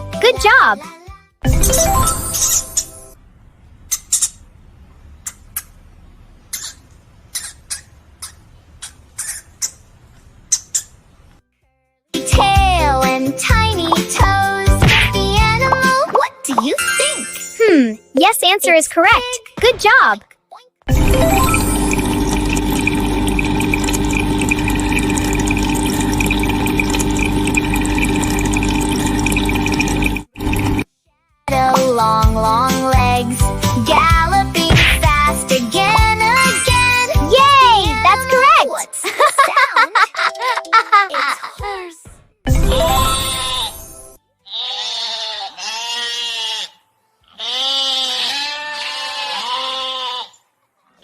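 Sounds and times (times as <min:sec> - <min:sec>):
machine hum: 0:20.9 - 0:30.8
rushing water: 0:21.7 - 0:30.8.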